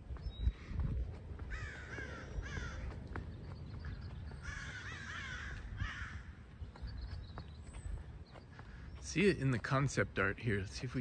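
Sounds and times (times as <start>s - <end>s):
bird cawing: 1.4s - 3.2s, 3.8s - 6.5s.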